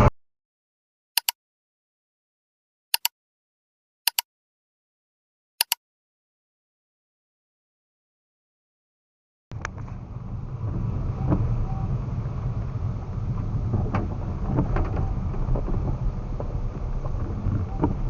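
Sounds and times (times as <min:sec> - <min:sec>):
road rumble in car: 0:09.5 - 0:18.0.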